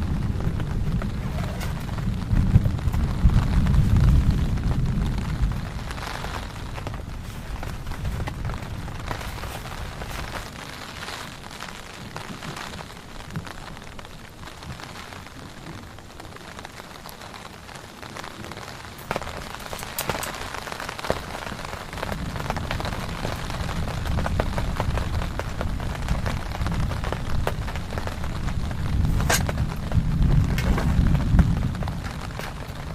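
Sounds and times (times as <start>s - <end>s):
low rumble: 0.0s - 10.7s
heavy rain falling: 0.0s - 32.9s.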